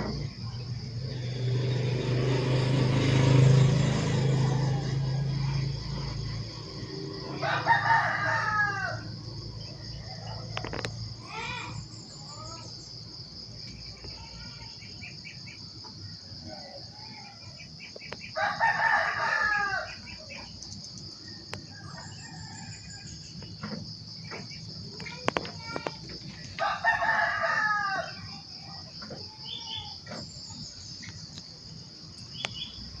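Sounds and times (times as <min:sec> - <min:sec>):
rooster crowing: 0:01.9 - 0:10.6, 0:18.3 - 0:20.3, 0:21.5 - 0:23.5, 0:26.5 - 0:28.5
bird chirps: 0:32.2 - 0:33.0.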